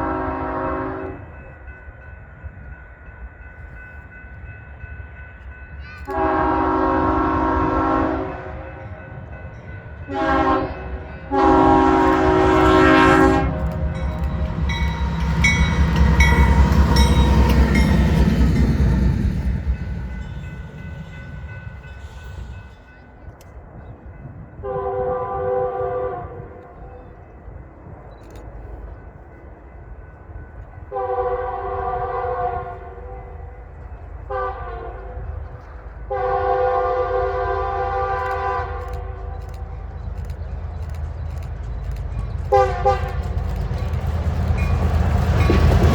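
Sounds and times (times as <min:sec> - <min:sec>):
locomotive horn blasts: 0:00.0 - 0:01.2, 0:06.1 - 0:09.0, 0:10.1 - 0:19.2, 0:24.6 - 0:26.8, 0:30.9 - 0:33.5, 0:34.3 - 0:35.4, 0:36.1 - 0:39.4, 0:42.5 - 0:43.2
train rumble passing: 0:00.0 - 0:45.9
train wheel clatter: 0:11.4 - 0:24.4, 0:38.0 - 0:45.9.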